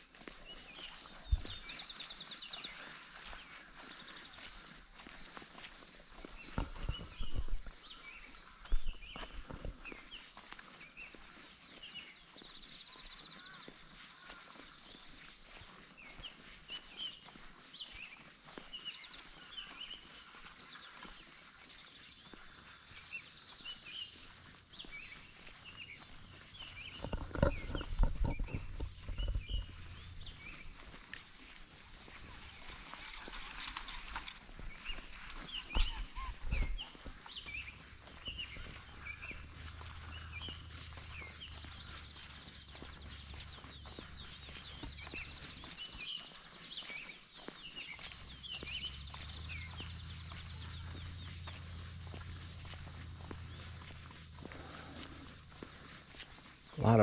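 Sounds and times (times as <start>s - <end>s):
birds chirping: 0.0s - 57.0s
insects buzzing: 0.2s - 57.0s
heavy footsteps: 0.4s - 3.8s, 26.4s - 56.3s.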